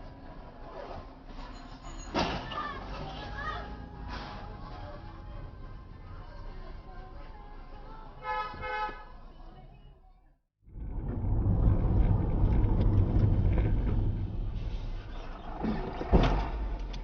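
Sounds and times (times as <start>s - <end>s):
vehicle rumbling on road: 0.0s - 8.2s, 10.6s - 17.0s
quiet traffic: 0.0s - 17.0s
car horn: 8.2s - 9.2s.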